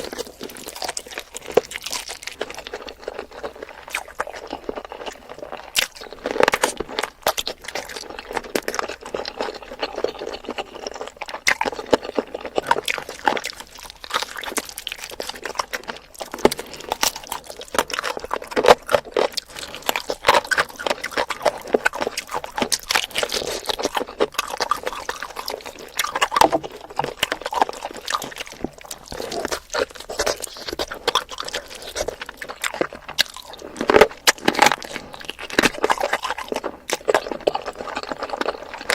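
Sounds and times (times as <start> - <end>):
wet chewing and sucking: 0.0 - 38.9.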